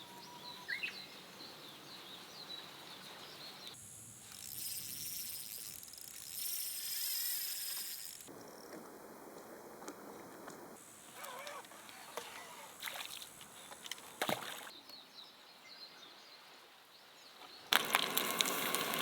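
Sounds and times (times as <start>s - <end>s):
insects chirping: 0.0s - 14.7s.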